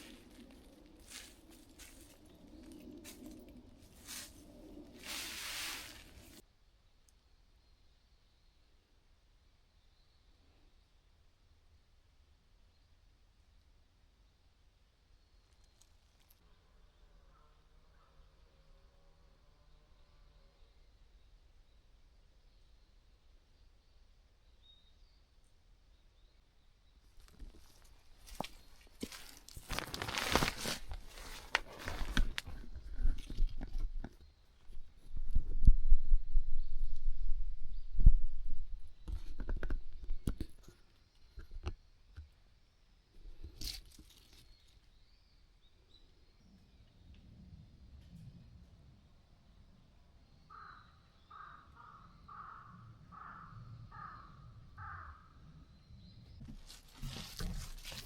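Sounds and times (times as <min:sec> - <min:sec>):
tarp rustling and crunching: 0:00.0 - 0:06.4, 0:27.2 - 0:34.0, 0:56.5 - 0:58.0
crow cawing: 0:50.5 - 0:55.4.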